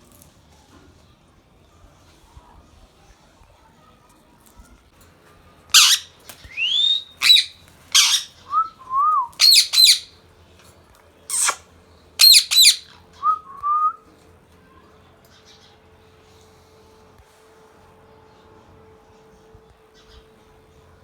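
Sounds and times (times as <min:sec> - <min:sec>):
parakeet screeching: 0:05.7 - 0:08.4, 0:09.4 - 0:10.1, 0:11.3 - 0:11.6, 0:12.2 - 0:12.9
parakeet whistles: 0:05.7 - 0:10.1, 0:11.3 - 0:11.6, 0:12.2 - 0:13.9.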